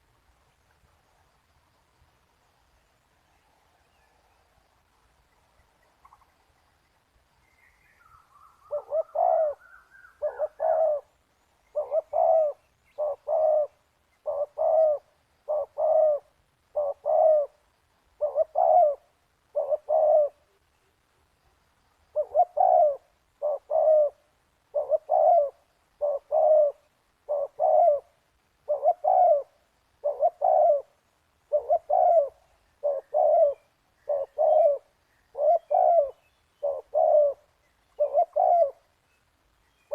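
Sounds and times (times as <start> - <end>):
dove cooing: 8.6 - 20.6, 22.1 - 38.9.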